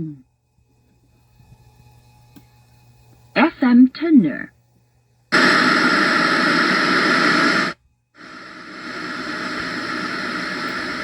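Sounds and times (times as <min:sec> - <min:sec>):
radio static: 0:05.4 - 0:11.0.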